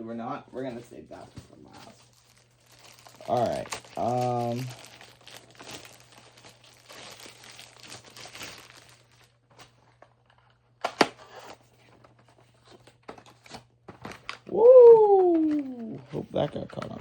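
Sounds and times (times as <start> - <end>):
packaging crinkling and tearing: 1.7 - 9.8.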